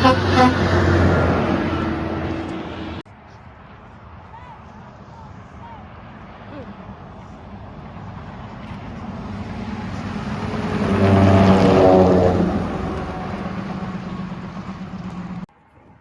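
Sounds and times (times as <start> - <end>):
truck driving past: 0.0 - 3.0, 3.6 - 15.5.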